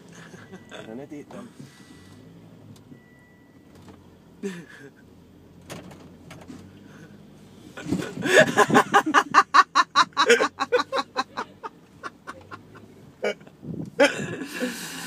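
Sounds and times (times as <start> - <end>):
rapid breathless laughter: 8.0 - 13.4.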